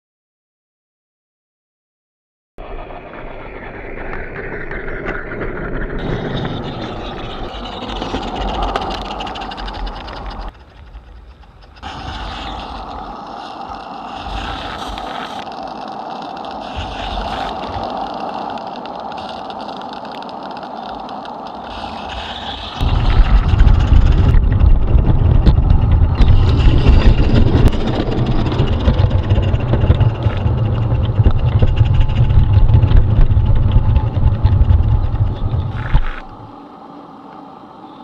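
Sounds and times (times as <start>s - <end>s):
steam hissing: 11.4s - 23.9s.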